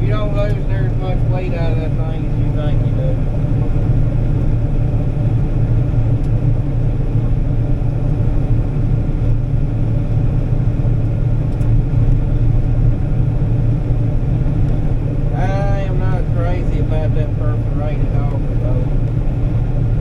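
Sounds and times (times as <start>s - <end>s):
combine harvester rumbling: 0.0s - 20.0s.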